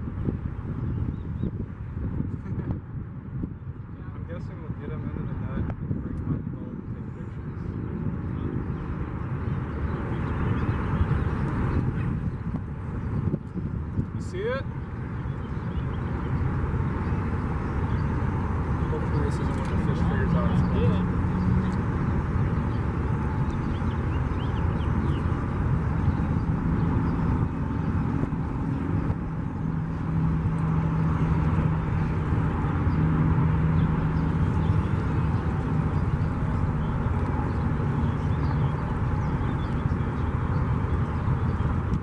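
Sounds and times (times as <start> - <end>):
boat motor running: 14.7 - 42.0.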